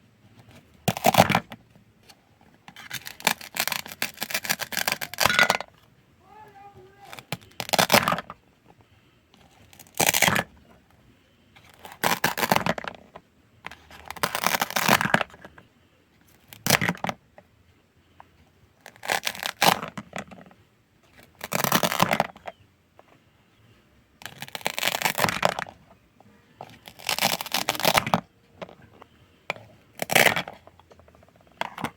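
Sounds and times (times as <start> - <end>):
knife crunching through food: 2.8 - 5.6, 14.2 - 15.2, 24.3 - 25.6, 26.8 - 28.2, 30.0 - 30.6.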